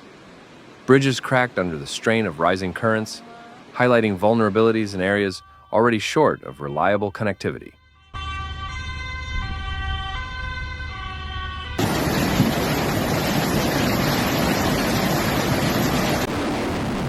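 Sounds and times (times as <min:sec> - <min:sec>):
two-tone siren: 0:03.1 - 0:03.8, 0:04.5 - 0:13.3
loud steady rushing noise: 0:11.8 - 0:17.0.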